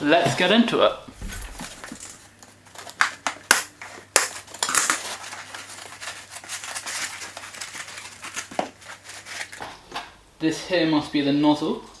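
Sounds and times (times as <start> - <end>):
foam rustling and scraping: 0.3 - 2.7
polystyrene foam cracking: 1.1 - 9.6.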